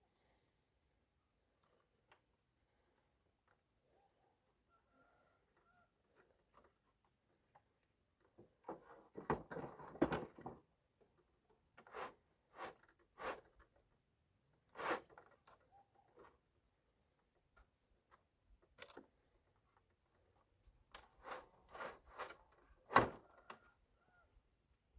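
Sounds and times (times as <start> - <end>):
faint knocks and clunks: 8.2 - 10.7.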